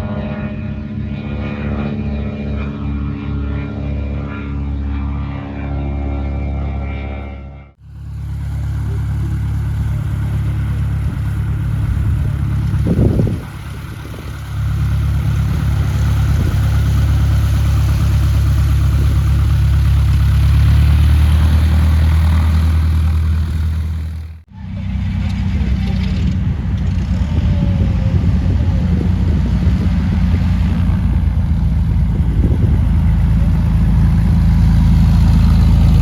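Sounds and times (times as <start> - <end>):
large piston engine running: 7.8 - 36.0.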